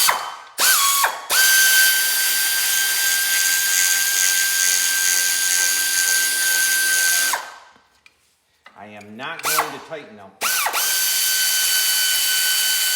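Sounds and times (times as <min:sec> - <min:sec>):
air ratchet whine: 0:10.4 - 0:12.9.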